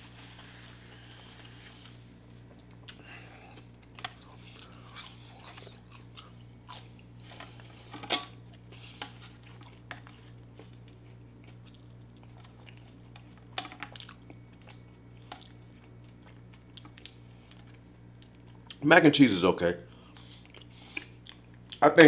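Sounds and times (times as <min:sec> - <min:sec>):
steady low hum: 0:00.0 - 0:22.0
close chewing with mouth clicks: 0:02.5 - 0:07.8, 0:08.5 - 0:18.8, 0:19.9 - 0:21.8.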